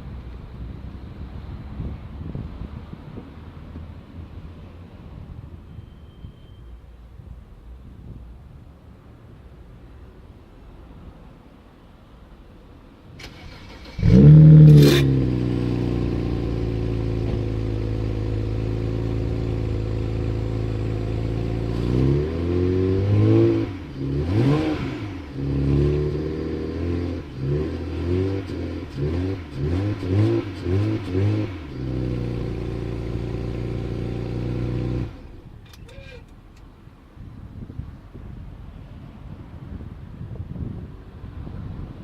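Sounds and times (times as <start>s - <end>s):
car engine starting and revving: 13.2s - 36.2s.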